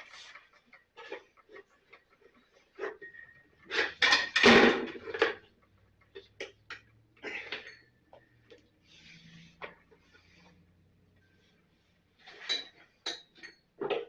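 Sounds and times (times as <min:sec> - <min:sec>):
hard objects knocking and clattering: 0:00.0 - 0:08.3, 0:12.3 - 0:14.0.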